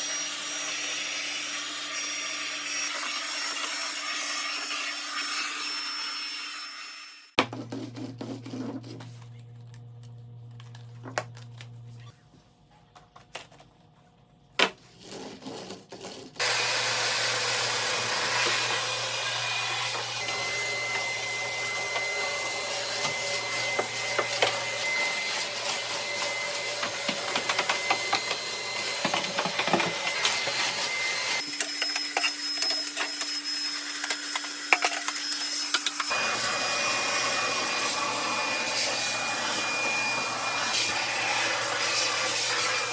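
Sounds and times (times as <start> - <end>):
cordless vacuum running: 16.4 - 42.9.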